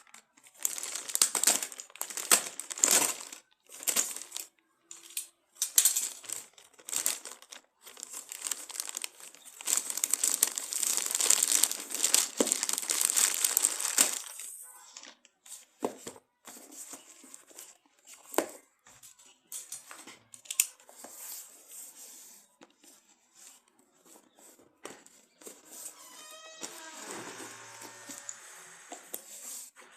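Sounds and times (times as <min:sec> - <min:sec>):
packaging crinkling and tearing: 0:00.0 - 0:04.6, 0:05.6 - 0:14.6, 0:25.6 - 0:28.9.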